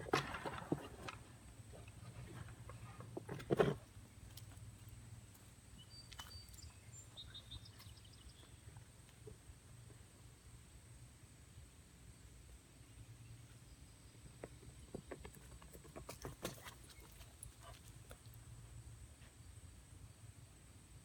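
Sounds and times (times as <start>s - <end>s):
outdoor ambience: 0.0s - 21.0s
faint bird chirps: 5.7s - 8.7s.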